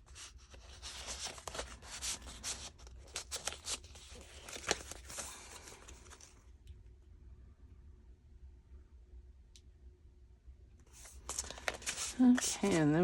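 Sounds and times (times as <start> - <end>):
paper pages rustling: 0.1 - 6.4, 10.9 - 13.0.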